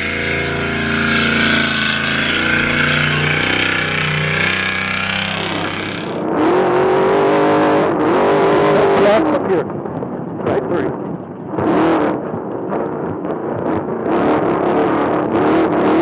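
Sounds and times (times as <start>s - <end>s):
truck engine running at high revs: 0.0s - 9.2s.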